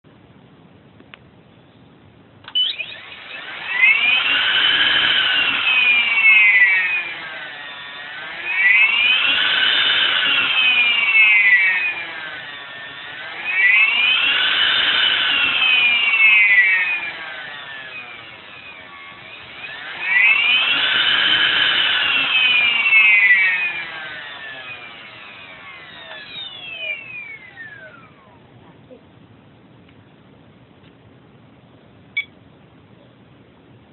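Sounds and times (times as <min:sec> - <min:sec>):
electric motor whining: 0:02.5 - 0:28.4.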